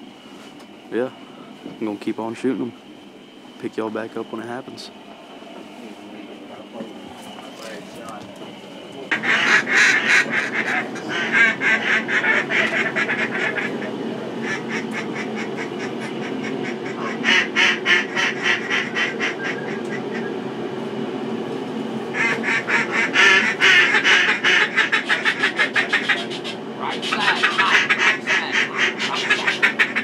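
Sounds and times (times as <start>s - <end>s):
duck quacking: 9.1s - 20.3s, 22.2s - 30.0s.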